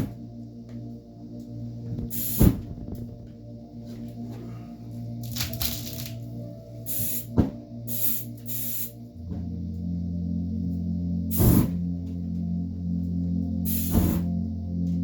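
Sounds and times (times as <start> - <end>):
steady low hum: 0.0 - 15.0
aerosol spray hissing bursts: 2.1 - 2.6, 6.9 - 7.3, 7.9 - 8.9, 13.7 - 14.2.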